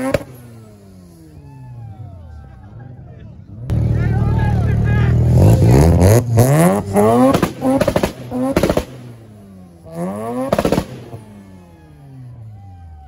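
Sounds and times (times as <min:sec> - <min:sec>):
rotary engine revving: 0:03.6 - 0:11.7
exhaust pops and crackles: 0:07.1 - 0:09.2, 0:10.3 - 0:11.2.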